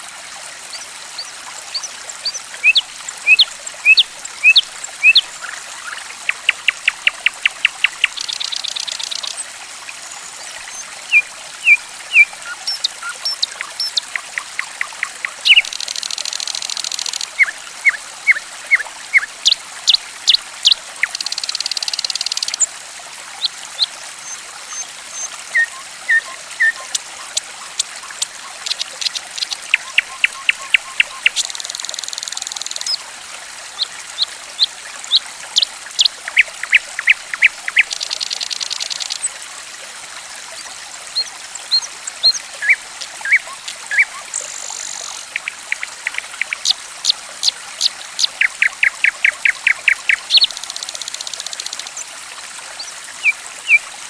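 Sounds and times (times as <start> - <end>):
flowing water trickling: 0.0 - 54.0
songbird chirping: 1.2 - 9.4, 11.1 - 17.6, 28.2 - 33.0.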